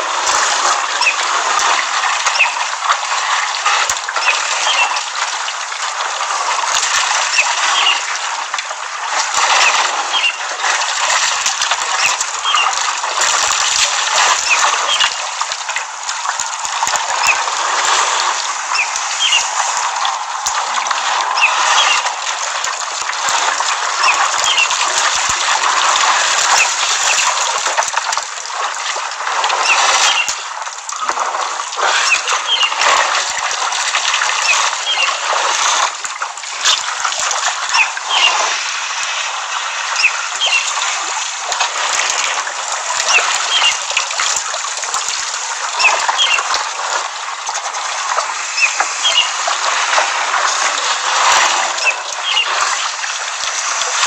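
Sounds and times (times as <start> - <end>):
water splashing and sloshing: 0.0 - 54.0
small birds chirping: 1.0 - 1.3, 2.2 - 2.7, 4.2 - 5.1, 7.3 - 8.1, 9.4 - 12.8, 13.5 - 15.2, 18.6 - 19.9, 21.3 - 22.2, 24.0 - 25.7, 29.6 - 30.4, 32.0 - 32.9, 34.3 - 35.2, 37.7 - 38.6, 39.9 - 40.9, 43.1 - 44.1, 45.8 - 46.5, 48.4 - 49.5, 51.7 - 53.0.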